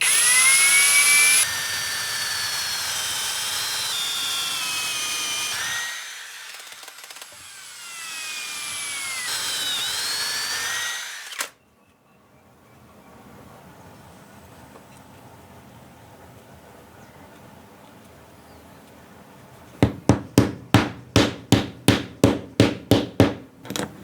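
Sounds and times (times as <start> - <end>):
drill motor whining: 0.0 - 11.5.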